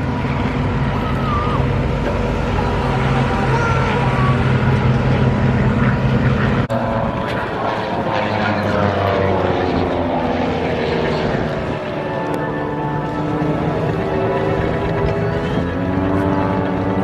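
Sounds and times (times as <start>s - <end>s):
propeller planes droning overhead: 0.0s - 17.0s.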